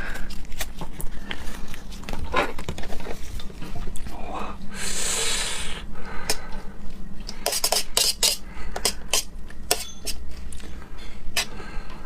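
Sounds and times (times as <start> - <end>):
tableware clicking and tapping: 7.5 - 10.2.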